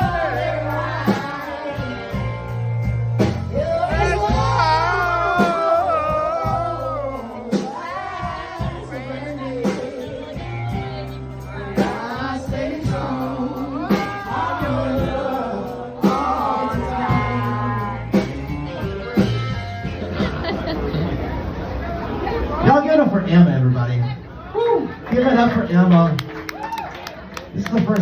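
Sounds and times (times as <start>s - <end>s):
live band playing: 0.0s - 28.0s
person singing: 3.5s - 18.4s.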